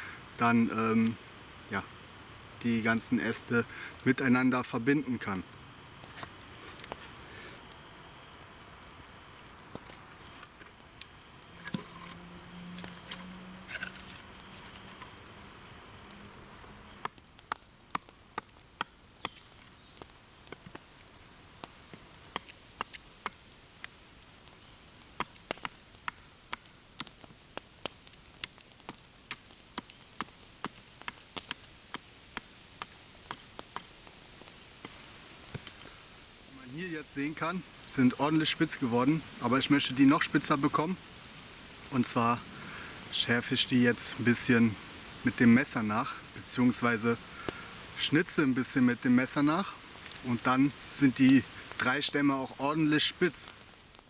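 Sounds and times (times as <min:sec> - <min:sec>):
low steady hum: 0:00.0 - 0:17.2.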